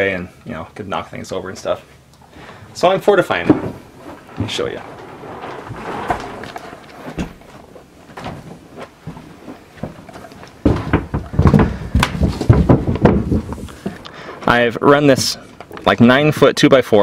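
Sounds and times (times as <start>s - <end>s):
knocks and creaks on wooden boards: 3.3s - 14.6s
thuds on plank floor: 10.6s - 14.0s.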